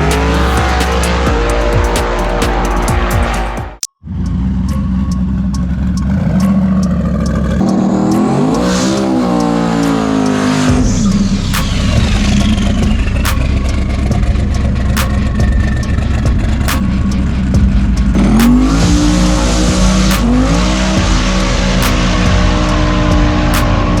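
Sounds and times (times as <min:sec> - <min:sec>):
engine revving: 0:00.0 - 0:24.0
race car engines idling: 0:00.0 - 0:24.0
sharp ticks: 0:00.0 - 0:24.0.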